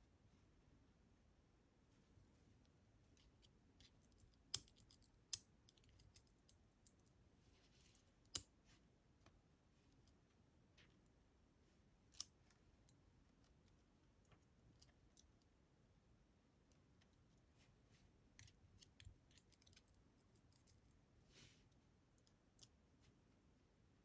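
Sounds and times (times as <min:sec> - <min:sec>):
small metal lock parts clicking: 0:03.2 - 0:07.2, 0:18.4 - 0:20.8.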